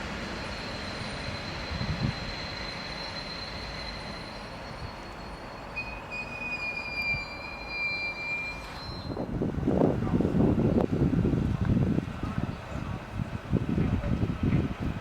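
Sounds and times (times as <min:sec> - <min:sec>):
train running on rails: 0:00.0 - 0:15.0
high-pitched wheel squeal: 0:00.4 - 0:09.3
lower squeal tone: 0:00.4 - 0:09.3.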